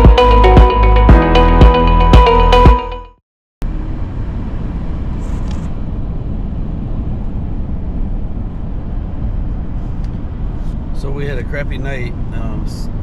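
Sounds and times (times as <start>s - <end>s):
background music: 0.0s - 3.2s
car road noise from inside: 3.6s - 13.0s.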